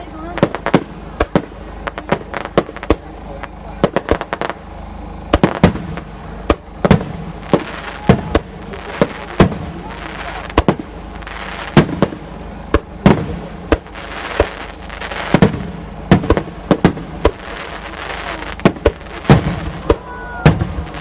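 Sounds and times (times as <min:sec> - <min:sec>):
firework shells bursting: 0:00.3 - 0:21.0.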